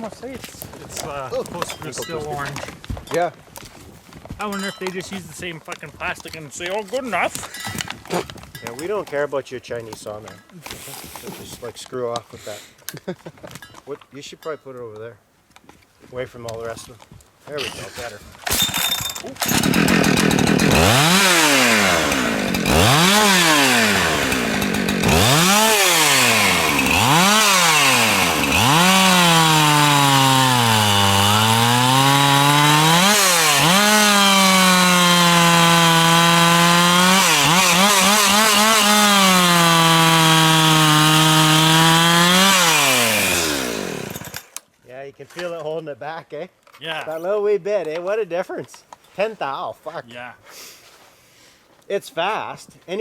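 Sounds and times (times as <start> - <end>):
chainsaw cutting log: 17.8 - 44.7.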